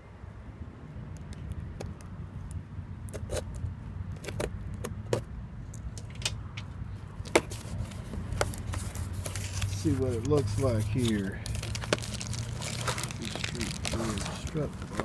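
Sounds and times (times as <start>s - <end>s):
cardboard box being opened: 7.4s - 15.0s.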